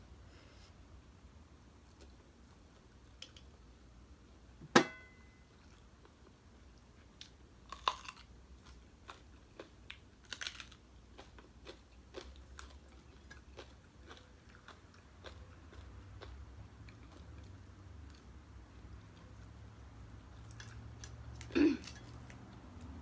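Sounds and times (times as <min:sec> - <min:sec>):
chewing crunchy food: 0:05.6 - 0:23.0.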